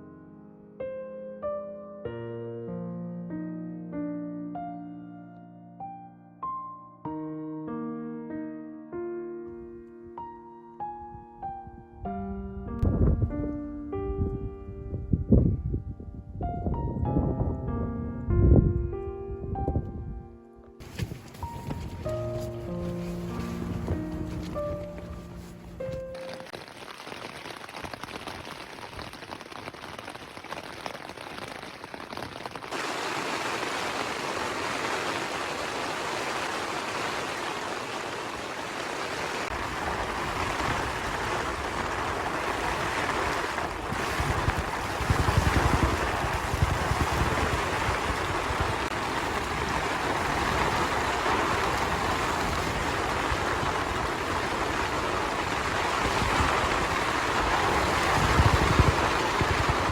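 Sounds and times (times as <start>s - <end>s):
wind gusts rumbling: 12.7s - 26.2s, 32.7s - 59.9s
heavy rain on a tent: 20.8s - 59.9s.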